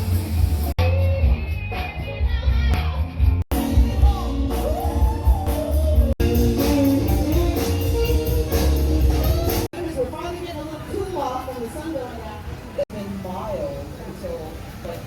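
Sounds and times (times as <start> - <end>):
live rock band: 0.0 - 9.7
person singing: 0.8 - 9.7.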